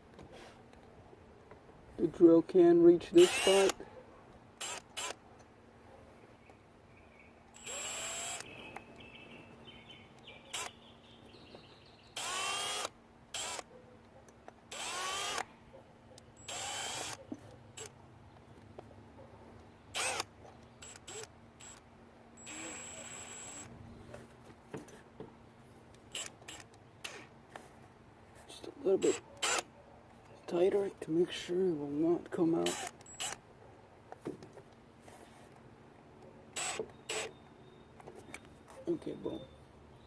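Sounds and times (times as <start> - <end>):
power drill driving screws: 3.2 - 3.8, 4.6 - 5.2, 7.6 - 8.5, 12.2 - 13.6, 14.7 - 15.4, 16.4 - 17.2, 20.0 - 21.8, 22.4 - 23.7, 26.1 - 27.3, 29.4 - 29.7, 32.6 - 33.4, 36.6 - 37.3.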